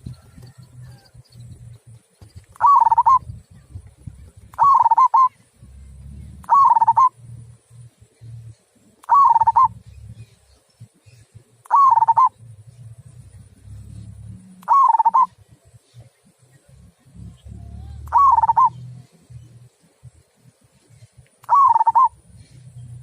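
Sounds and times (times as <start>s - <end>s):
dove cooing: 2.5s - 7.4s, 9.0s - 10.1s, 11.7s - 15.5s, 17.1s - 19.4s, 21.4s - 23.0s.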